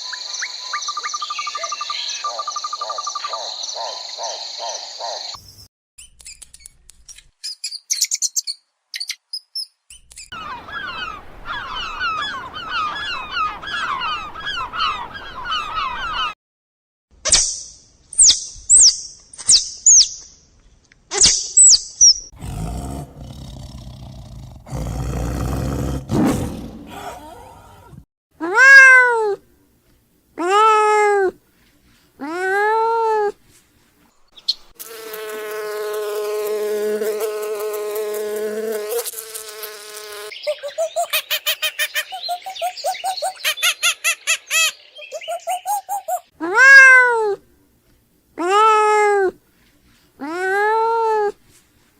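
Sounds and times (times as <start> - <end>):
animal chirps: 0.0 - 6.4, 40.3 - 47.0
animal growling: 22.4 - 28.0
meow-like animal calls: 27.0 - 29.4, 46.5 - 47.4.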